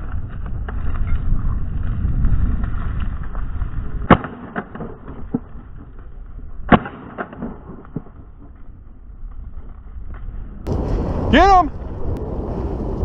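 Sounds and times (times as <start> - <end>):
wind rumble: 0.0 - 13.0
sharp cracks: 2.6 - 12.0.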